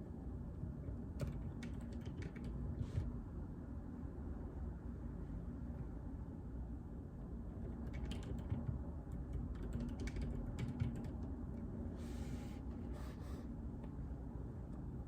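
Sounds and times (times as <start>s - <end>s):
soft keyboard keystrokes: 1.2s - 3.1s, 7.7s - 11.3s.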